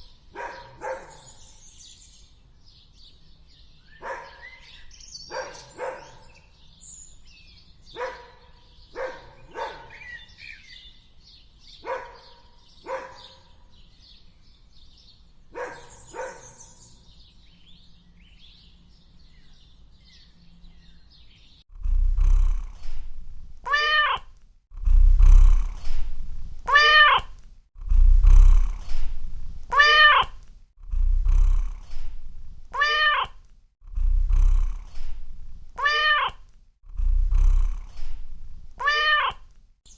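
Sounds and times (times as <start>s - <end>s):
low rumble: 21.7s - 23.6s, 24.7s - 26.7s, 27.8s - 29.7s, 30.8s - 32.7s, 33.8s - 35.8s, 36.8s - 38.8s
animal yips or barks: 23.6s - 24.3s, 26.6s - 27.4s, 29.7s - 30.4s, 32.7s - 33.4s, 35.8s - 36.4s, 38.8s - 39.5s
drawn-out meow-like calls: 23.6s - 24.3s, 26.6s - 27.4s, 29.7s - 30.4s, 32.7s - 33.4s, 35.8s - 36.4s, 38.8s - 39.5s.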